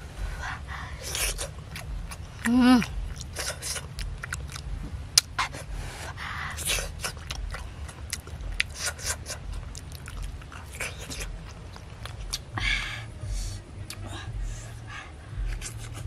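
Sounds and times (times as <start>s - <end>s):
person chewing open-mouthed: 0.8s - 12.6s, 13.4s - 14.2s, 15.4s - 16.0s
wet lip smacks: 1.0s - 5.7s, 6.5s - 12.5s, 15.5s - 16.0s.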